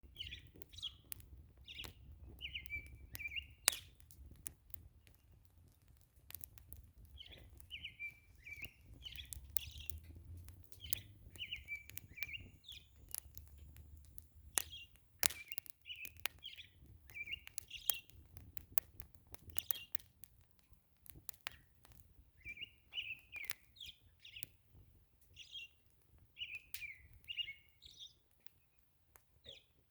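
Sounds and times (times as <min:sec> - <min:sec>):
songbird singing: 0:00.0 - 0:04.0, 0:07.1 - 0:13.7, 0:14.6 - 0:18.1, 0:22.4 - 0:24.6, 0:25.3 - 0:28.8, 0:29.4 - 0:29.8
campfire crackling: 0:00.0 - 0:29.9.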